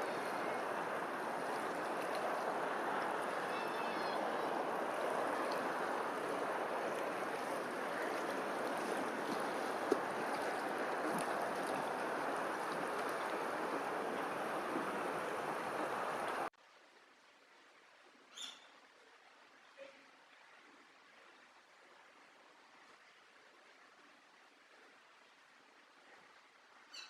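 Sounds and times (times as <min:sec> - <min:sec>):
water rushing: 0:00.0 - 0:16.6.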